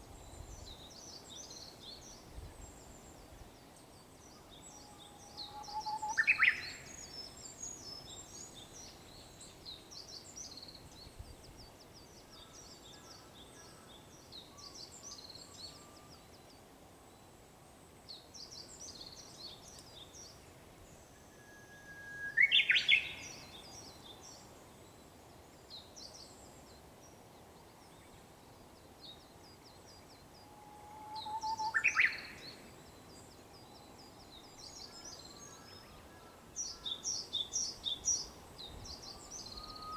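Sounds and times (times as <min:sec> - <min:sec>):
warbler whistling song: 0:04.7 - 0:09.0, 0:21.3 - 0:24.3, 0:30.1 - 0:36.0, 0:36.6 - 0:39.9.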